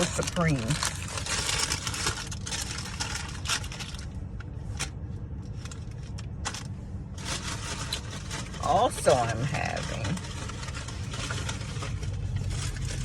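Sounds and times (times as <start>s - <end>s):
rustling: 5.5s - 13.0s.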